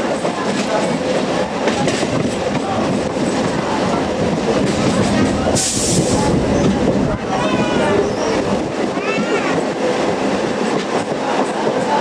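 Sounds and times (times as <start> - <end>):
train rumbling on rails: 0.0 - 12.0
short hiss burst: 5.5 - 6.3.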